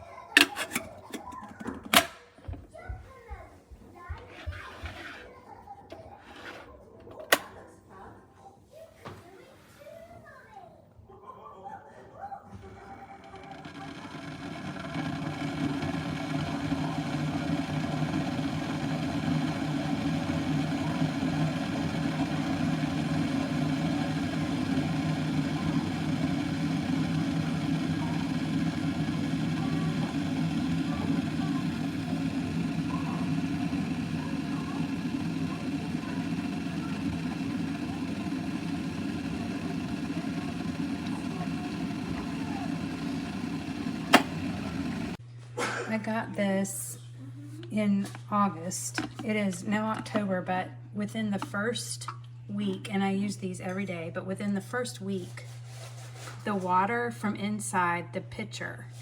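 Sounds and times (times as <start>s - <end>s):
electric kettle heating water: 0.3s - 2.6s, 12.5s - 45.2s, 48.4s - 50.4s.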